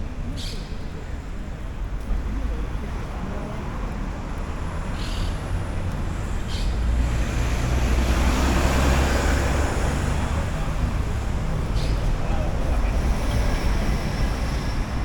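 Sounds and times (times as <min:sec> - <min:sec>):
low rumble of traffic: 0:00.0 - 0:15.0
vehicle passing close: 0:06.9 - 0:11.6.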